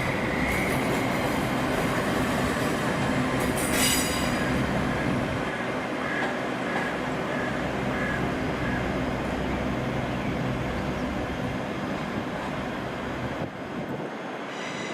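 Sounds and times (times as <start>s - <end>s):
train wheels squealing on rails: 0.0s - 7.6s, 14.3s - 14.9s
train running rumble: 0.0s - 14.9s.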